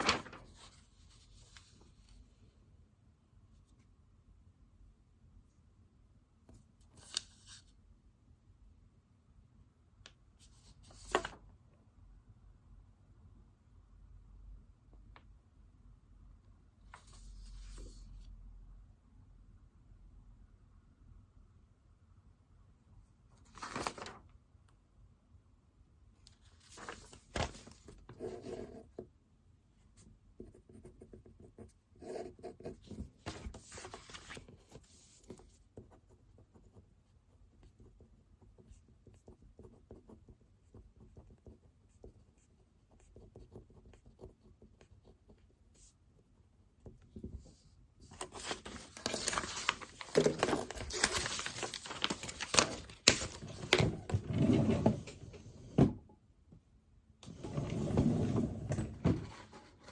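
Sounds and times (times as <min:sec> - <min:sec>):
rustling and handling: 0:00.0 - 0:02.6, 0:23.3 - 0:24.3, 0:26.2 - 0:29.0, 0:32.8 - 0:35.6, 0:46.9 - 0:55.4
pen scratching on paper: 0:30.4 - 0:33.8, 0:34.5 - 0:46.0.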